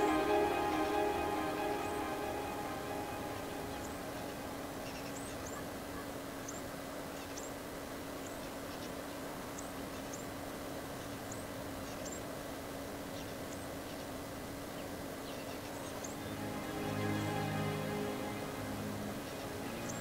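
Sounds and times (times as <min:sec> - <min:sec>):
faint steady hum: 0:00.0 - 0:20.0
steady background rush: 0:16.0 - 0:20.0.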